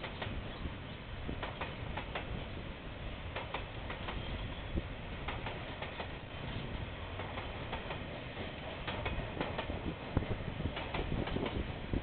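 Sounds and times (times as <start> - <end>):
sharp clicks and knocks: 3.4 - 4.2, 5.3 - 6.1, 7.2 - 8.0, 8.8 - 9.7.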